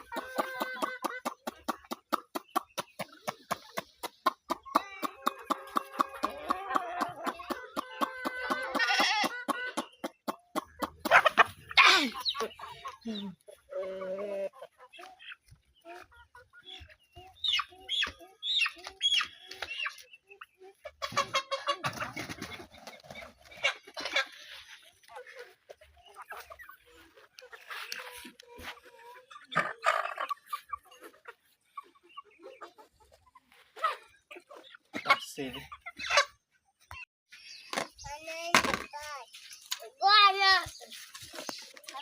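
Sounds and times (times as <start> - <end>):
chickens clucking: 0.0 - 42.0.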